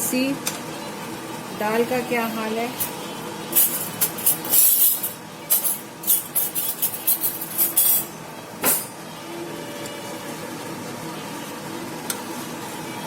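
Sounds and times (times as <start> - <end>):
utensils clinking on metal pot: 3.5 - 8.9.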